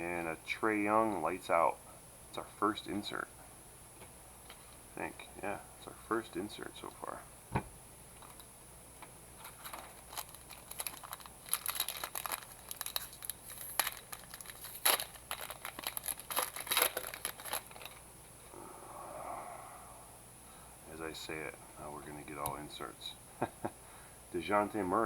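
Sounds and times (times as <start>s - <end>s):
card pack wrapper crinkling and tearing: 9.4s - 18.1s.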